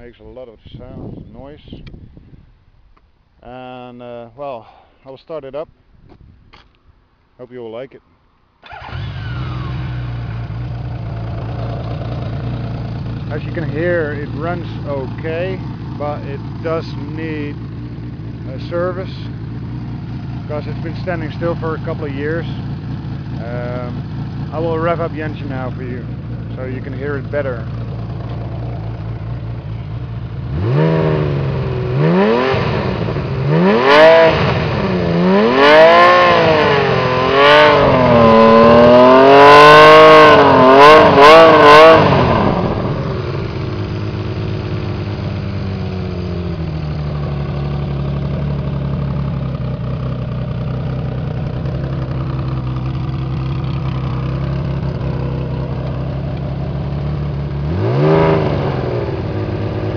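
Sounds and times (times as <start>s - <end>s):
engine idling: 8.6s - 32.2s, 36.1s - 59.9s
motorcycle engine revving: 8.6s - 59.9s.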